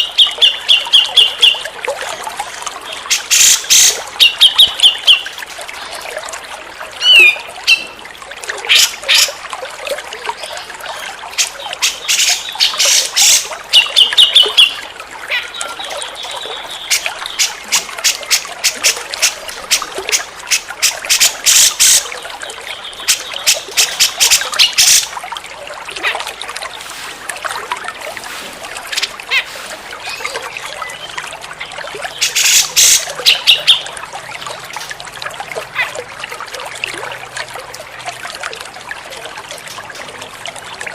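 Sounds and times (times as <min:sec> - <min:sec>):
bulbul calling: 0:00.0 - 0:01.6, 0:03.1 - 0:05.3
running water trickling: 0:00.0 - 0:40.9.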